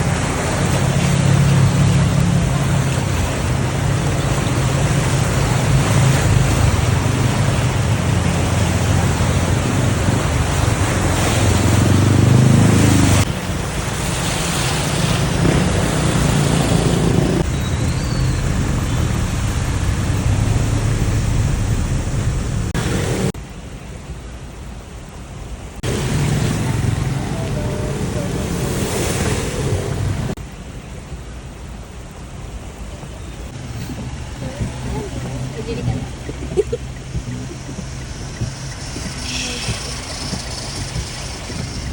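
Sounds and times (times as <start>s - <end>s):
heavy rain pouring: 0.0s - 23.4s, 25.6s - 41.9s
vehicle engines humming: 0.0s - 41.9s
wind on microphone: 33.4s - 41.9s.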